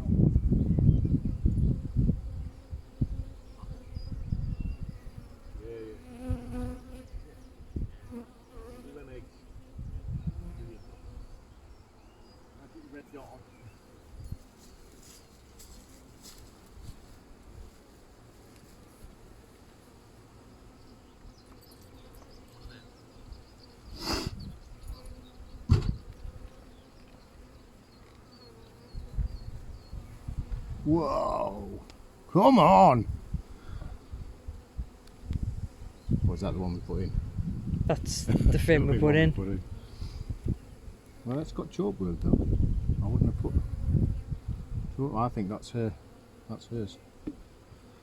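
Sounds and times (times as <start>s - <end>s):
bee buzzing close by: 0.1s - 48.0s
honeybees buzzing: 0.6s - 48.0s
sharp thump: 25.7s - 26.0s.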